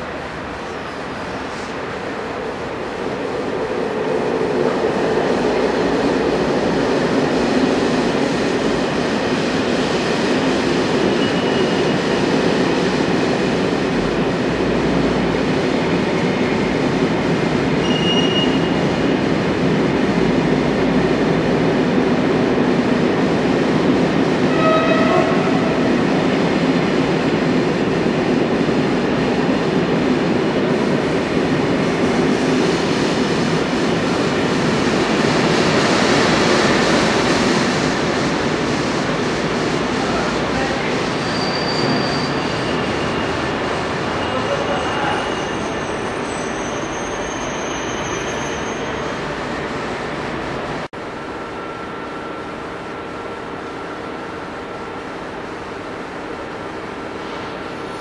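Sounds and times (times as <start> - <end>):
train rumbling on tracks: 0.0 - 58.0
faint high squeals: 17.8 - 18.8, 41.2 - 43.4, 44.2 - 49.2.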